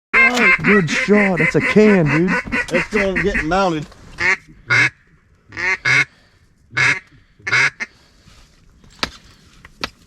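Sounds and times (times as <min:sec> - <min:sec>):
duck quacking: 0:00.2 - 0:08.0.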